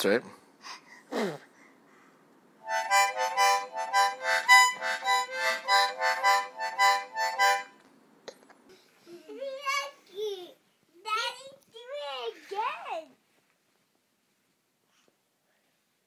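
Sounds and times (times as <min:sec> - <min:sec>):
harmonica short chords: 0:02.6 - 0:07.8.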